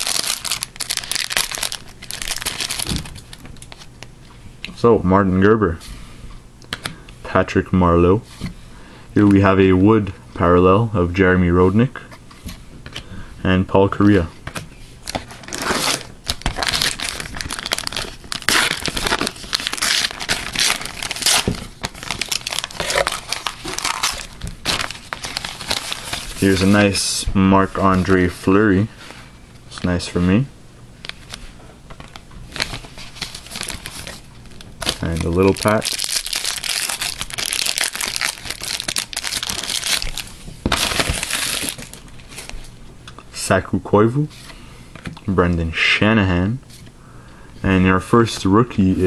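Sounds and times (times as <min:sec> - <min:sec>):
plastic wrapper crinkling and tearing: 0:00.0 - 0:04.0, 0:15.0 - 0:26.8, 0:32.0 - 0:42.6.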